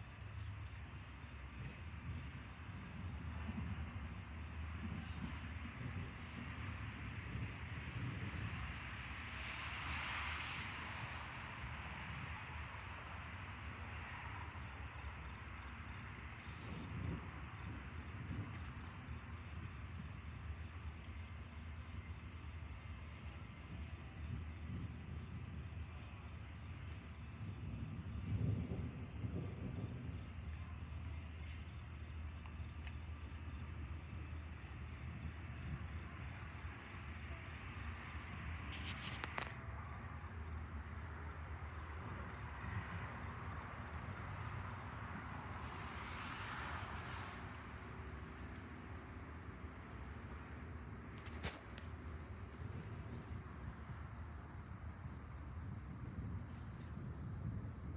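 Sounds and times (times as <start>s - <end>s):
crickets trilling: 0.0s - 57.9s.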